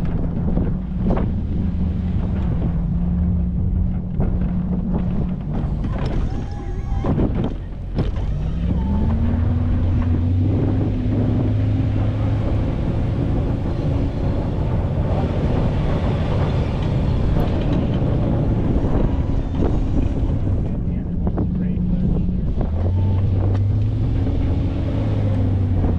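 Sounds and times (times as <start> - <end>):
vehicle engine revving: 0.0 - 25.9
wind noise on microphone: 0.0 - 25.9.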